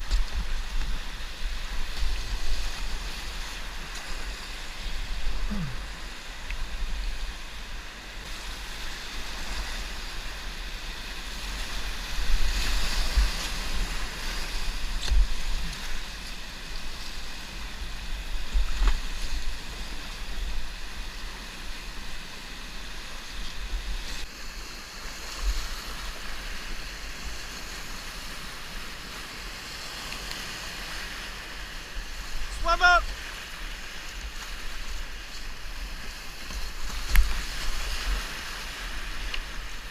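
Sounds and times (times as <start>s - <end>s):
wind rumbling on microphone: 0.0s - 22.2s
river water rushing and splashing: 0.0s - 39.9s.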